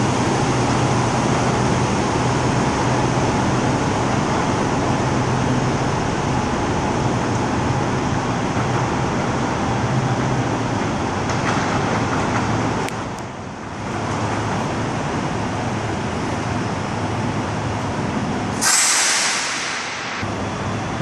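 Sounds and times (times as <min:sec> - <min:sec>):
diesel truck engine rumble: 0:00.0 - 0:21.0
air brake hiss: 0:18.6 - 0:20.3.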